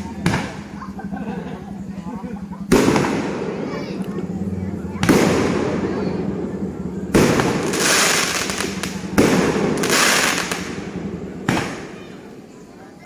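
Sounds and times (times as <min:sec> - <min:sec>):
firework bangs: 0:00.0 - 0:00.8, 0:02.4 - 0:04.0, 0:04.9 - 0:12.5
firework crackling tail: 0:00.0 - 0:13.0.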